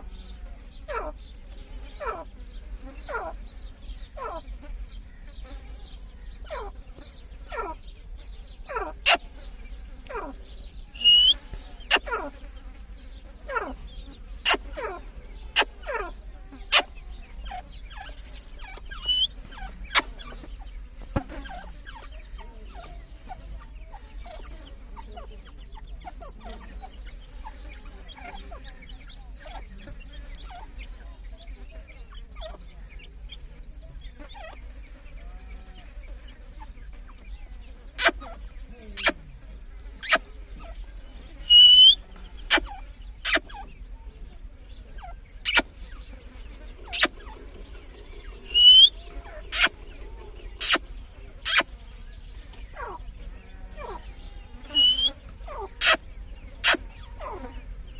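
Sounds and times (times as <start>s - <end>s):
bird calling falling pitch: 11.0s - 12.0s, 18.9s - 19.4s, 41.5s - 42.0s, 48.4s - 49.8s, 54.7s - 55.2s.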